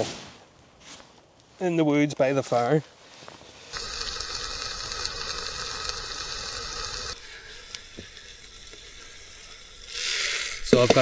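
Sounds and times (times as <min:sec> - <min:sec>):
vegetables sizzling in a pan: 0:03.7 - 0:11.0.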